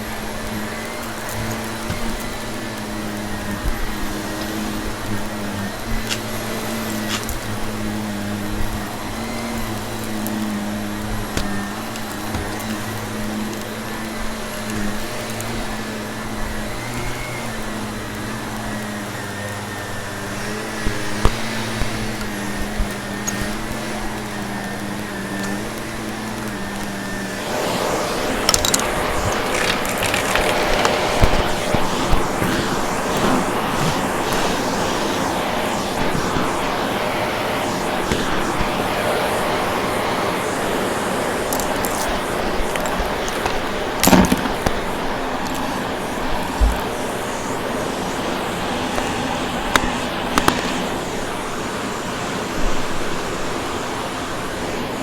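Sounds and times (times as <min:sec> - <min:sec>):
debris ticking in vacuum: 0:00.0 - 0:34.7, 0:41.3 - 0:47.4
vacuum cleaner running: 0:00.0 - 0:55.0.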